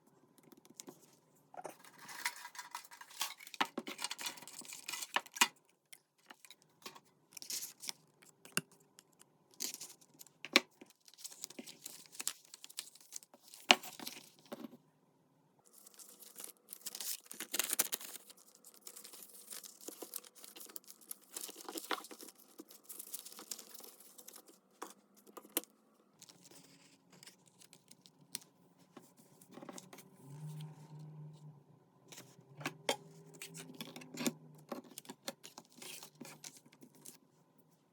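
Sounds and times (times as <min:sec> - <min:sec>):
paper rustling and sliding: 0:01.8 - 0:03.6.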